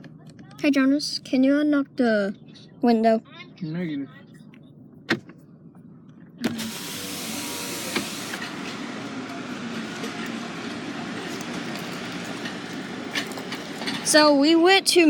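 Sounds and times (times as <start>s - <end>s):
car road and wind noise: 4.2s - 15.0s.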